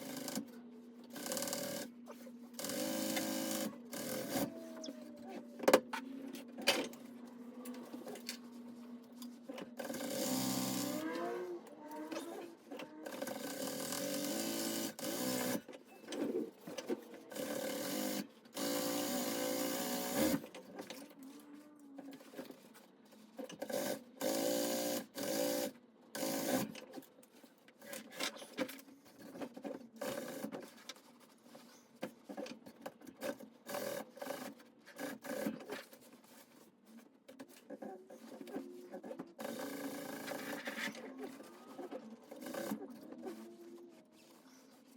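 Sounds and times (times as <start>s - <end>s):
sewing machine stitching: 2.6s - 4.6s, 9.8s - 11.5s, 38.5s - 43.5s.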